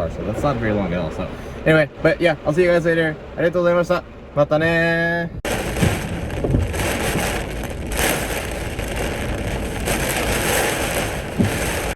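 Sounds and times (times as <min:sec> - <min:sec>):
low rumble: 0:04.0 - 0:11.9
heavy rain on car roof: 0:05.4 - 0:11.9.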